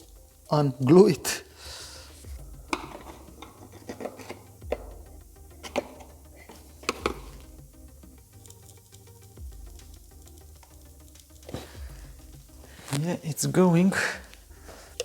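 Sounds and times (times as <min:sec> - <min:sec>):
quiet background music: 0:00.0 - 0:15.0
bracket clicking and knocking loose: 0:02.7 - 0:07.6.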